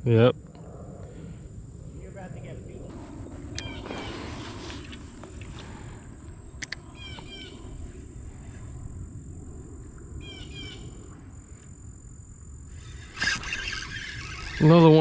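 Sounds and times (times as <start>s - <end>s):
low outdoor rumble: 0.0s - 15.0s
sharp clicks: 6.6s - 7.3s.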